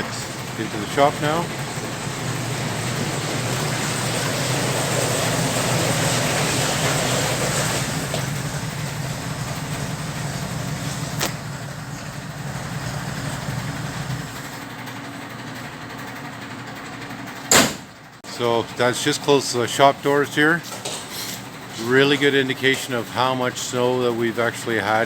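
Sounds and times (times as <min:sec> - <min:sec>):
snow vehicle engine running: 0:00.0 - 0:14.6.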